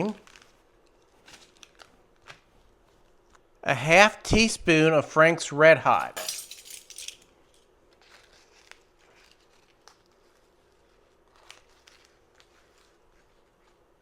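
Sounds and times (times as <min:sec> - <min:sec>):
faint rustling of packets: 0:00.0 - 0:03.5, 0:07.1 - 0:14.0.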